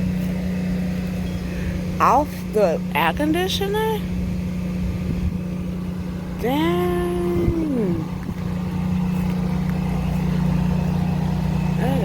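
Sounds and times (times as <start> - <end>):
low droning hum: 0.0 - 12.0
woman exclaiming: 6.4 - 8.1.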